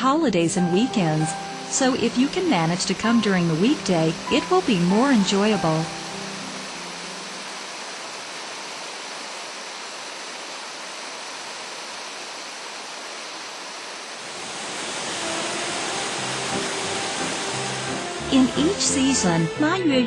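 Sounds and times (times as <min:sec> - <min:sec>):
music: 0:00.0 - 0:07.5, 0:14.9 - 0:20.0
rushing water: 0:00.0 - 0:19.7.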